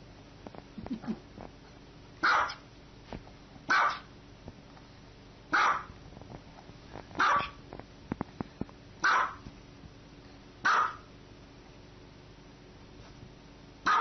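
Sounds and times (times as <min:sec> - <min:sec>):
small dog barking: 0:02.2 - 0:02.6, 0:03.7 - 0:04.1, 0:05.5 - 0:06.0, 0:07.2 - 0:07.6, 0:09.0 - 0:09.4, 0:10.6 - 0:11.1.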